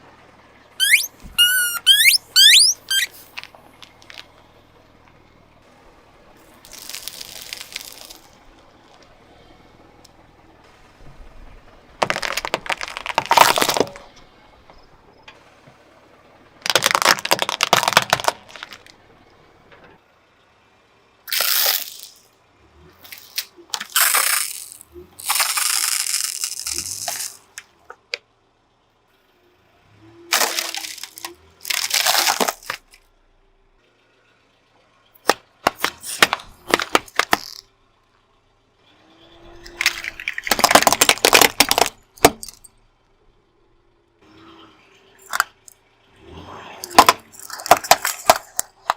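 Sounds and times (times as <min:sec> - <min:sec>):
car tire crushing brittle objects: 0:00.8 - 0:04.5, 0:06.4 - 0:09.1, 0:12.0 - 0:14.3, 0:16.6 - 0:19.3, 0:21.3 - 0:22.2, 0:23.0 - 0:28.1, 0:30.3 - 0:33.1, 0:35.2 - 0:37.7, 0:39.4 - 0:42.7, 0:45.2 - 0:45.8, 0:46.8 - 0:48.9.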